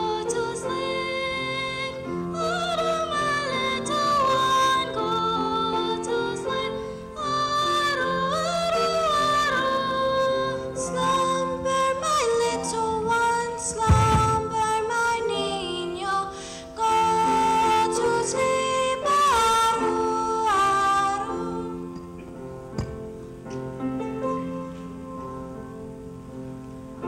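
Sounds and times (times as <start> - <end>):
low thump: 13.9 - 14.7.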